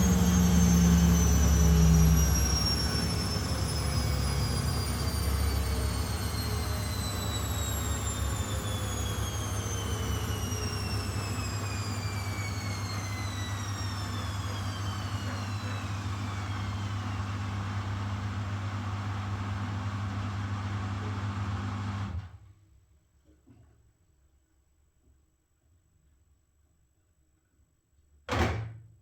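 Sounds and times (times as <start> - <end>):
washing machine motor whine: 0.0 - 22.4.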